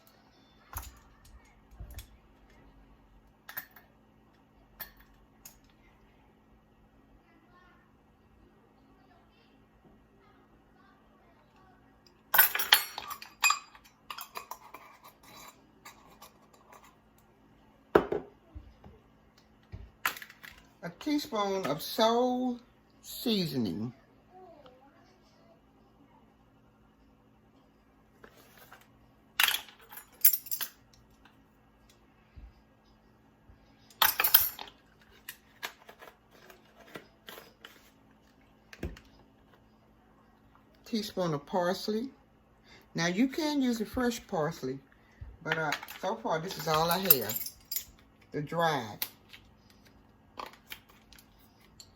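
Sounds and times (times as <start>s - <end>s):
spoon and containers clinking: 12.4s - 17.0s, 45.5s - 48.0s.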